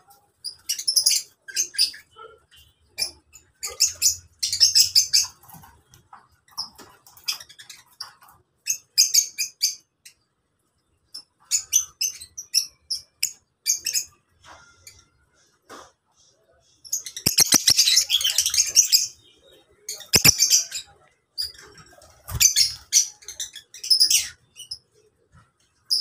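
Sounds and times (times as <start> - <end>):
lovebirds chattering: 16.8 - 21.0.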